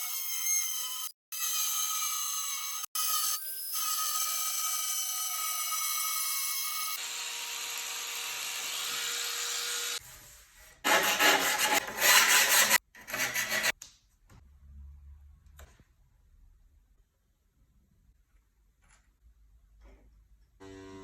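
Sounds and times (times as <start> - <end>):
power tool cutting tile: 0.0 - 10.0, 10.9 - 13.7, 20.6 - 21.0.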